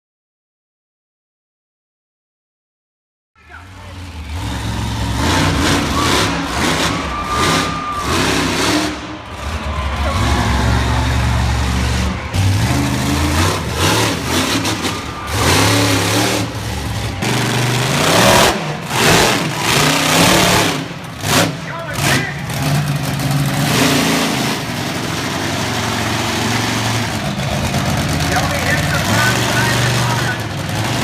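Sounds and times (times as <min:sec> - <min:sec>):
truck engines revving: 0:03.4 - 0:31.0.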